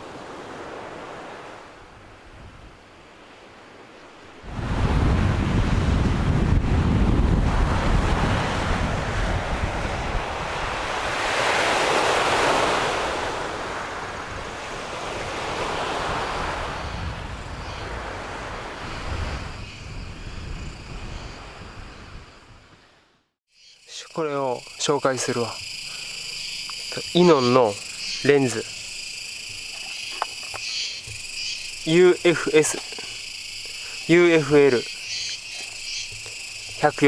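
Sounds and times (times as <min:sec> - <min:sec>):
ocean surf washing in: 0:00.0 - 0:22.6, 0:24.0 - 0:37.0
wind rumbling on microphone: 0:04.4 - 0:22.8.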